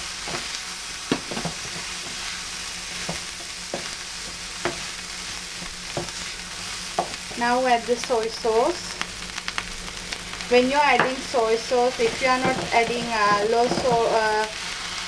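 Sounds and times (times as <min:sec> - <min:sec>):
rice sizzling on griddle: 0:00.0 - 0:15.0.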